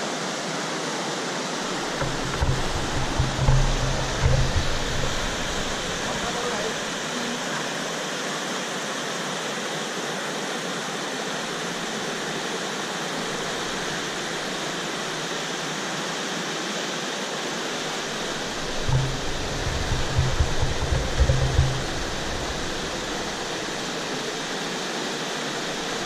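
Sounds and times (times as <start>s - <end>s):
river rushing: 1.0s - 8.2s, 10.6s - 16.3s, 17.2s - 26.0s
low rumbling bursts: 1.7s - 7.0s, 13.2s - 15.2s, 17.8s - 24.8s.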